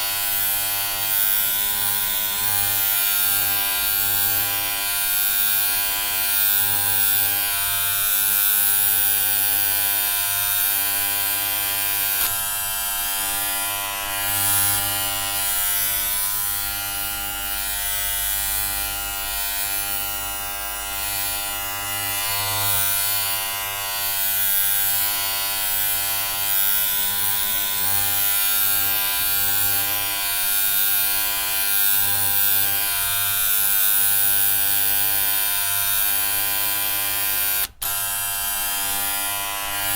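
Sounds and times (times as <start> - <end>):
electric hair clippers buzzing: 0.0 - 39.9.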